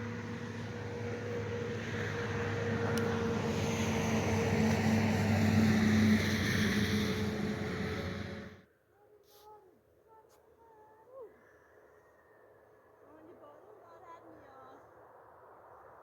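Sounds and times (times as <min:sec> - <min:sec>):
engine humming: 0:00.0 - 0:08.6.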